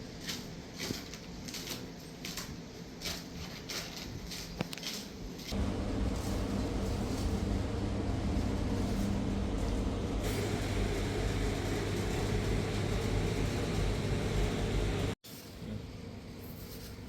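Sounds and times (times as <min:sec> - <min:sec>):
machine humming and rumbling: 0:05.5 - 0:15.2.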